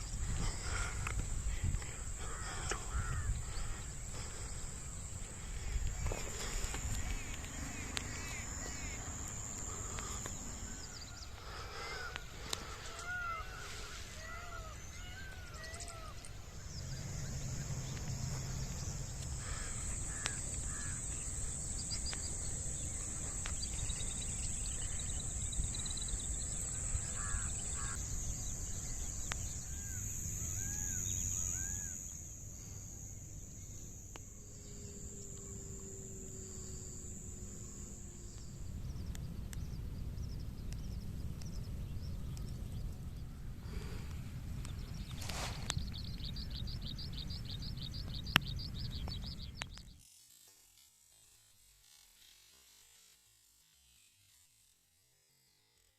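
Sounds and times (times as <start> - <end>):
high-pitched insect buzz: 0.0 - 39.8, 44.9 - 55.9
crows cawing: 0.4 - 5.0, 9.6 - 16.3, 19.4 - 21.5, 26.7 - 28.1.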